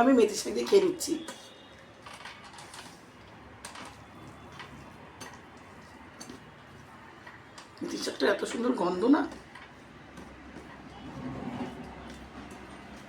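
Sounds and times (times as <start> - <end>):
hand mixing food on a plate: 2.9 - 13.0.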